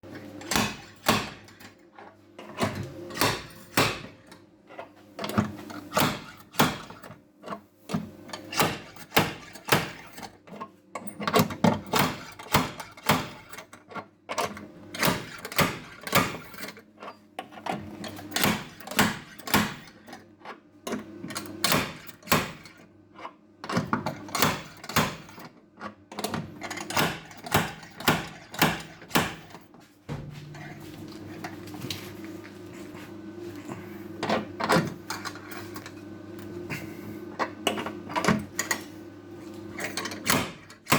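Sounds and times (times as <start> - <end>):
low steady hum: 30.1 - 34.2.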